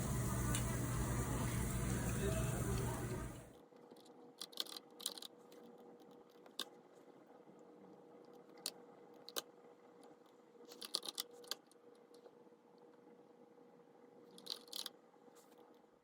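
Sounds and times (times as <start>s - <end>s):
faint steady hum: 0.0s - 3.6s.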